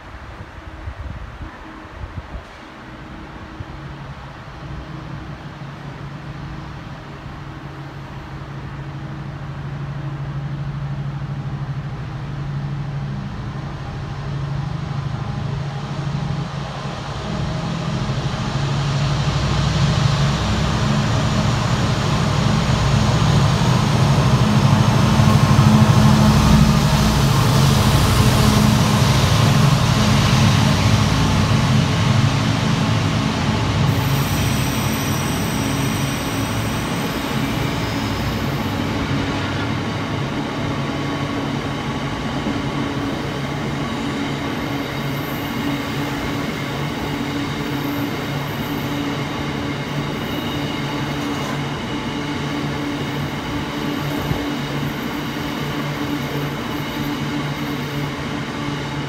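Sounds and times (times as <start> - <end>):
diesel locomotive engines: 0.0 - 59.0
train wheel rumble: 0.0 - 59.0
high wheel squeals: 33.9 - 39.5, 44.6 - 52.1.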